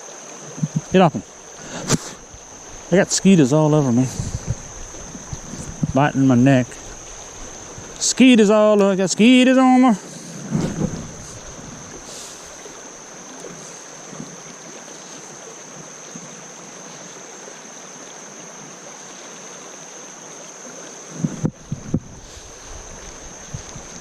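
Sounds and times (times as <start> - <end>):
creek water over rocks: 0.0 - 24.0.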